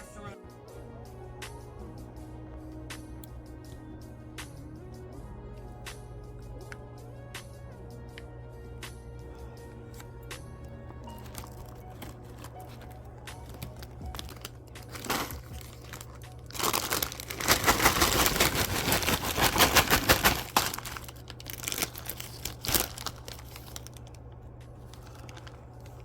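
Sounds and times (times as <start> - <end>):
steady low hum: 0.0 - 26.0
crinkling handling noise: 9.4 - 26.0.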